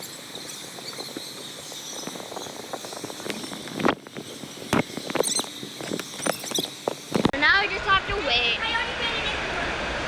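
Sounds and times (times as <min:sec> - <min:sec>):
indoor water park din: 0:07.4 - 0:10.0.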